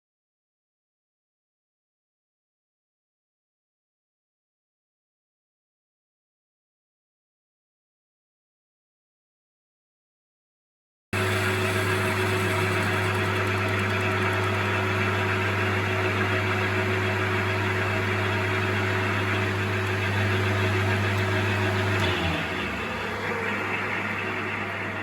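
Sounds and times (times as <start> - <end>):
metal lathe motor hum: 11.2 - 25.0.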